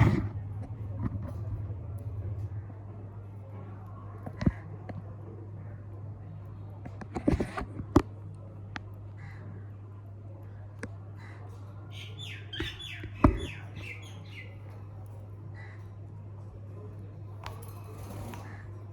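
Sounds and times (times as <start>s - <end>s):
steady low hum: 0.0s - 18.9s
parrot squawking: 11.9s - 14.6s.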